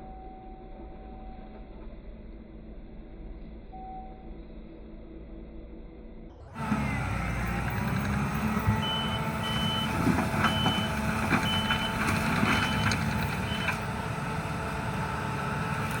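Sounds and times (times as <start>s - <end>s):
skid steer engine running: 6.4s - 16.0s
reverse alarm beeping: 8.7s - 13.8s.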